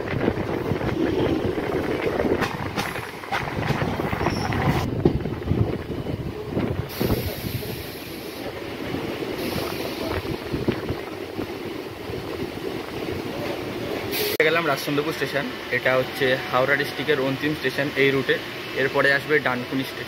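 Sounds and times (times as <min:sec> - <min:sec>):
wind on microphone: 0:00.0 - 0:08.1, 0:08.9 - 0:13.3
train wheels rumbling: 0:00.0 - 0:16.2
passing train alongside: 0:00.0 - 0:20.0.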